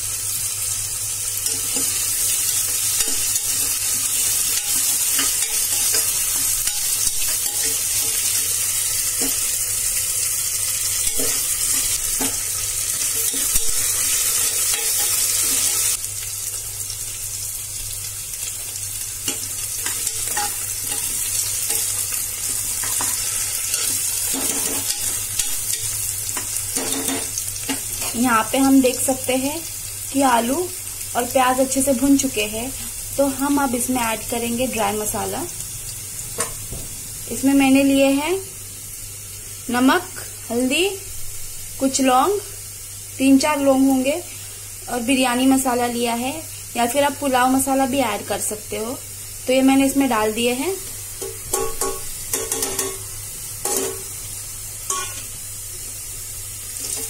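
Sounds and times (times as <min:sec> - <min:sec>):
vegetables sizzling in oil: 0:00.0 - 0:57.0
spatula scraping and tapping pot: 0:51.2 - 0:53.0.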